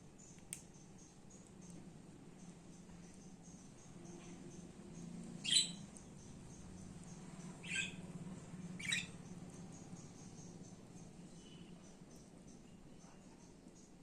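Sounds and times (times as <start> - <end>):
budgerigar squawking: 8.8 - 9.1.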